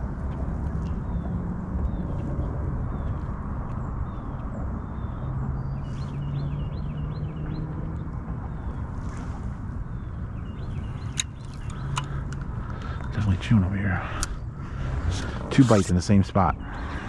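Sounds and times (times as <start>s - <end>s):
low hum: 0.0s - 17.0s
bird chirping: 0.8s - 17.0s
sharp clicks: 11.0s - 13.1s
steady rush: 11.7s - 17.0s.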